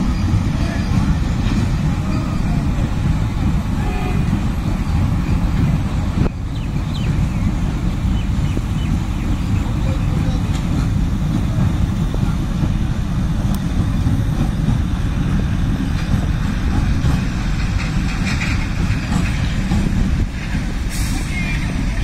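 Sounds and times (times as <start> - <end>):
train rumbling across bridge: 0.0 - 22.0.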